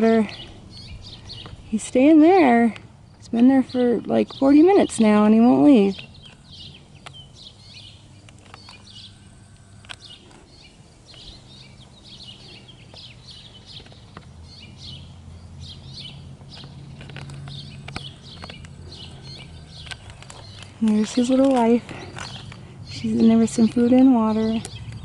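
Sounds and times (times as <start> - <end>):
low steady rumble: 0.0 - 25.0
small birds chirping: 0.0 - 25.0.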